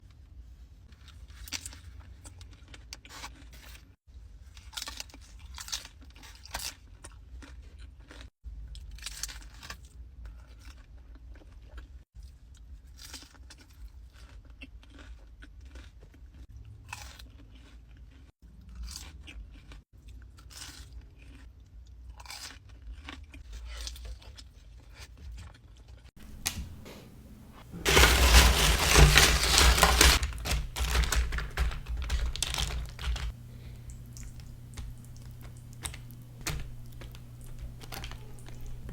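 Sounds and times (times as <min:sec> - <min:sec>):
crunching tortilla chips: 0:22.2 - 0:24.4, 0:26.2 - 0:38.9.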